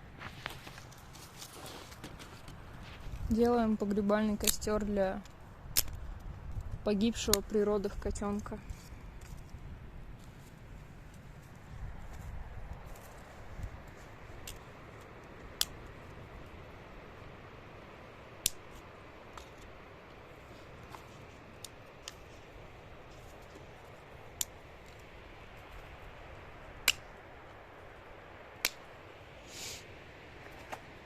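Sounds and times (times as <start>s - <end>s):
faint background noise: 0.0s - 31.0s.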